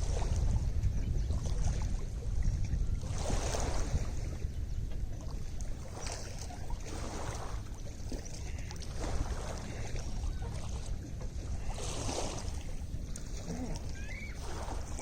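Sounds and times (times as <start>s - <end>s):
waves lapping and splashing: 0.0s - 15.0s.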